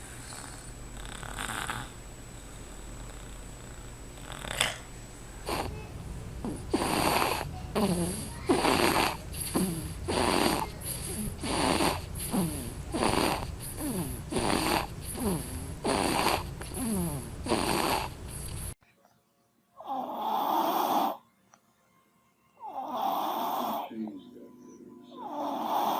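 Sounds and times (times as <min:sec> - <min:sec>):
baby rasping breaths: 0:06.4 - 0:18.8.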